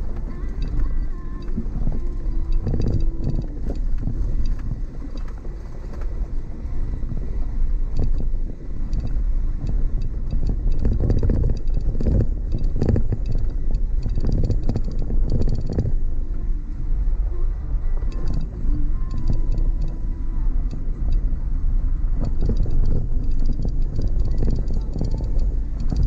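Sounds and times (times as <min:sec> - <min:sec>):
knocks and rattles: 0:00.0 - 0:06.1, 0:07.9 - 0:16.1, 0:22.1 - 0:26.0
car rumbling on dirt track: 0:00.0 - 0:26.0.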